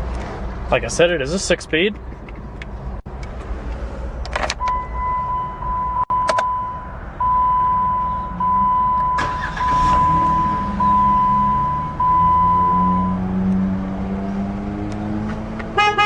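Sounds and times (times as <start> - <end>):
in-car chime tone: 4.6 - 13.2.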